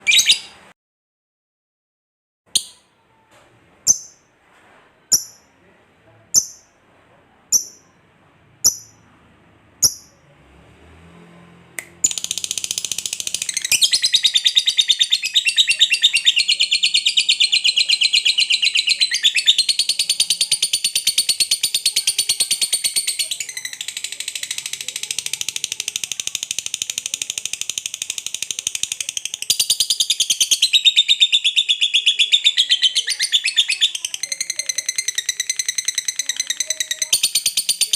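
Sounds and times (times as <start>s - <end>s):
lovebird chirps and trill: 0.0s - 0.6s, 3.9s - 4.3s, 5.1s - 5.5s, 6.4s - 6.8s, 7.5s - 8.0s, 8.6s - 9.0s, 9.8s - 10.2s, 12.0s - 37.9s.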